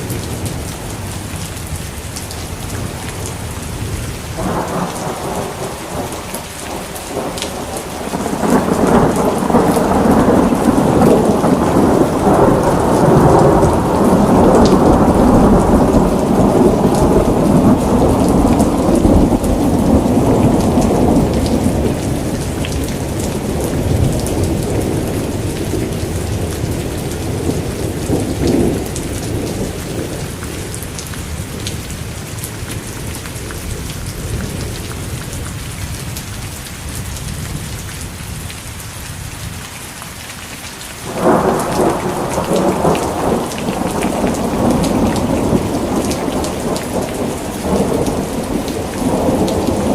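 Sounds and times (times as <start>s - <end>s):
thunder rumbling: 0.0s - 35.2s, 41.1s - 49.9s
rain pattering: 0.0s - 49.9s
loud peal of thunder: 4.4s - 30.2s, 41.1s - 49.9s.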